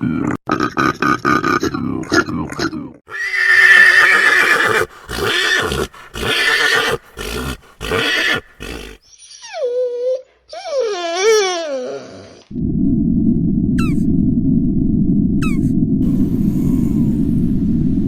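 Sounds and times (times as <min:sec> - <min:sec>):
horse neighing: 0:03.1 - 0:09.0, 0:11.1 - 0:12.4.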